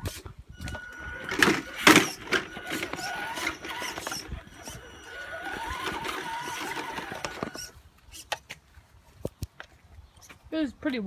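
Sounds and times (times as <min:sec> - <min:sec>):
electric motor whine: 0:00.6 - 0:07.8.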